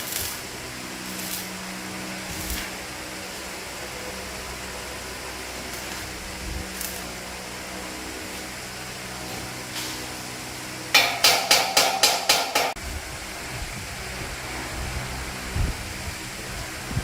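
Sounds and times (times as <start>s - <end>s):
low workshop hum: 0.0s - 17.0s
hammer striking metal: 10.9s - 12.8s.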